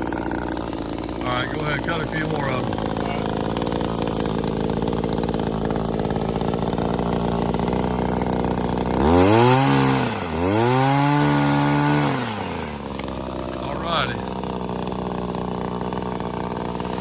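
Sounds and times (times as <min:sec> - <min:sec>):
two-stroke engine idling and revving: 0:00.0 - 0:17.0.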